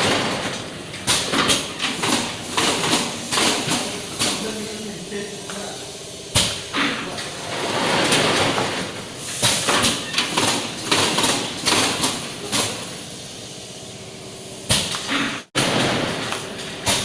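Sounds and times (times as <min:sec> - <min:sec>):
mechanical clacks and knocks: 0:00.0 - 0:04.4, 0:07.5 - 0:12.9
sliding scrapes: 0:07.4 - 0:08.6.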